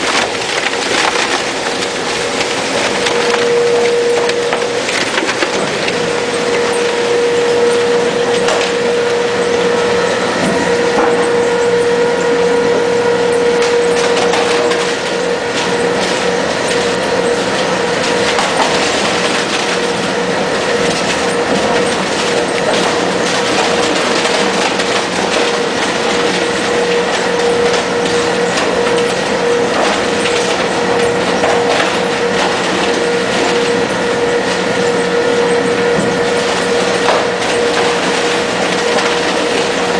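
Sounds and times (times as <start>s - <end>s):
foam crackling as crushed: 0.0s - 9.3s, 13.6s - 34.7s
machine hum: 0.0s - 39.9s.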